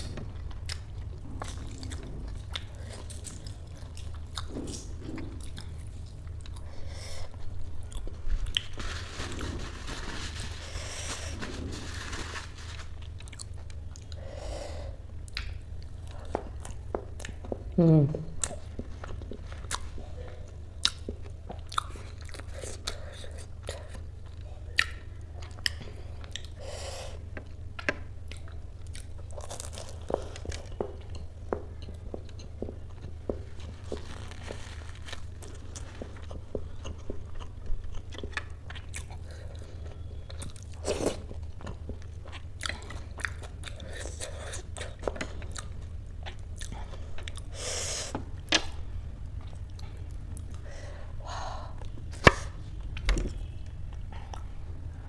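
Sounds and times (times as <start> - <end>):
chewing and crunching: 0.0 - 14.2, 18.4 - 26.6, 27.2 - 47.5
steady low hum: 0.0 - 55.0.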